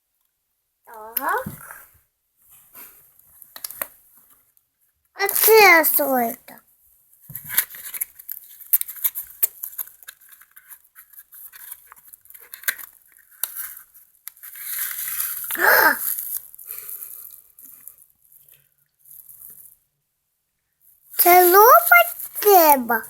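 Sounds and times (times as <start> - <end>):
small parts clicking and knocking: 3.5 - 3.9, 5.2 - 6.0, 7.5 - 19.8
plastic packaging crinkling: 7.6 - 19.7.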